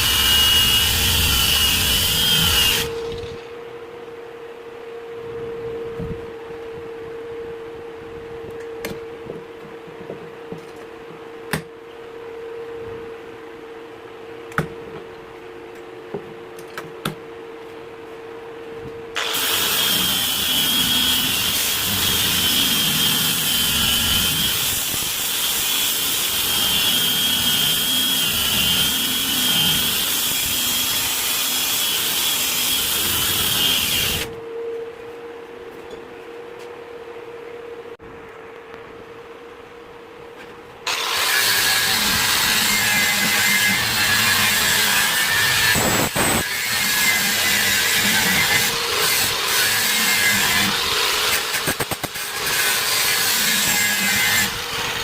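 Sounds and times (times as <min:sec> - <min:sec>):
power tool whining: 0:00.0 - 0:03.6, 0:19.2 - 0:34.4, 0:40.9 - 0:55.0.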